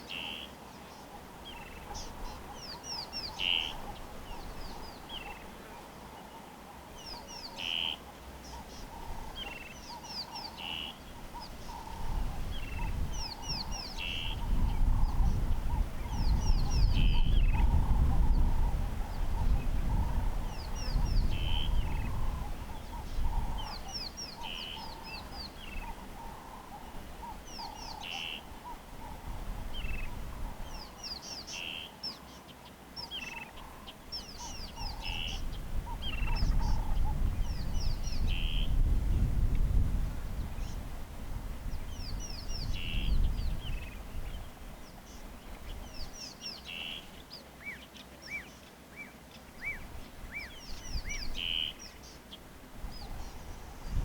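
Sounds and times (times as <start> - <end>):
lower bird calling: 0.0 - 38.9, 41.7 - 54.0.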